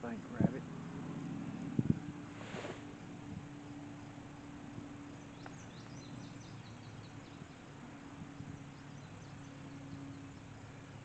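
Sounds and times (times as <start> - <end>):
steady low hum: 0.0 - 11.0
small bird chirping: 3.6 - 11.0.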